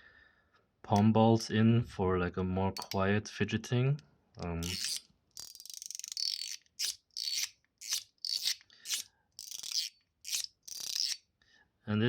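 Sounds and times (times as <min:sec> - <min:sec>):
fidget slider scraping: 0:04.5 - 0:11.2.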